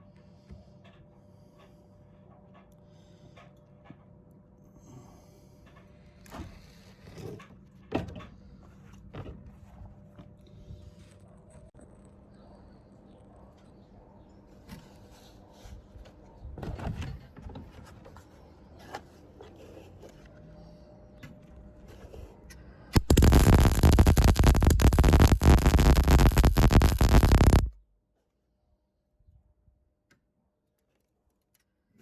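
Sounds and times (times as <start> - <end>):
welder arc crackling: 23.0 - 27.8.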